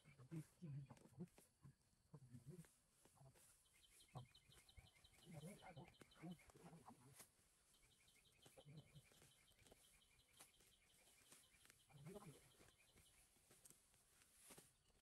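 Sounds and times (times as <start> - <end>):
grass clumps rustling and thudding: 8.4 - 14.9.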